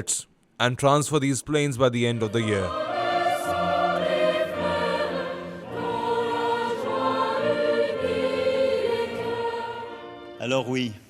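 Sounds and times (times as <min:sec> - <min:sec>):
choir singing held notes: 0:02.0 - 0:10.4.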